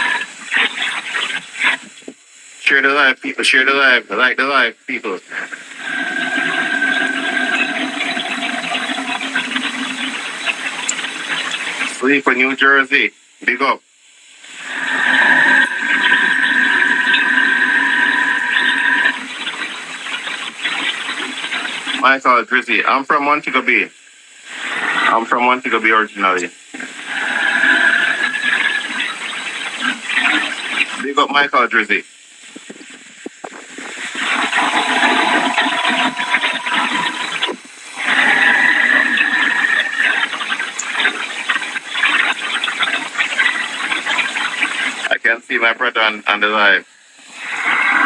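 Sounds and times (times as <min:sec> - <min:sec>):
high steady whistling tone: 0:05.7 - 0:12.0, 0:14.4 - 0:22.0, 0:26.2 - 0:31.0, 0:34.0 - 0:45.1
hurricane wind and rain: 0:24.4 - 0:45.2.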